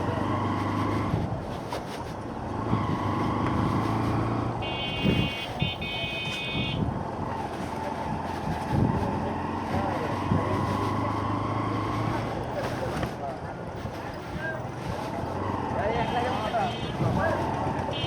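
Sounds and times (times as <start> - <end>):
motorcycle engine and road noise: 0.0 - 18.0
vehicle horn: 4.6 - 6.8, 16.0 - 17.1.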